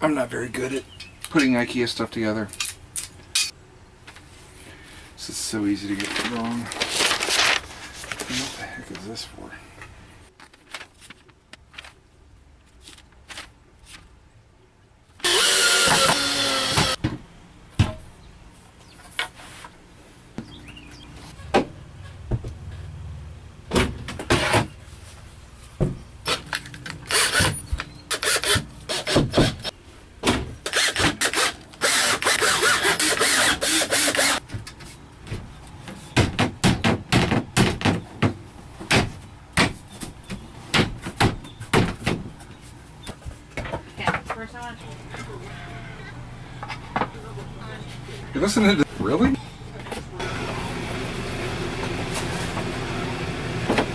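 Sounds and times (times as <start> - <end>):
power drill running: 15.2 - 17.0, 27.1 - 27.5, 28.1 - 29.2, 30.7 - 34.4.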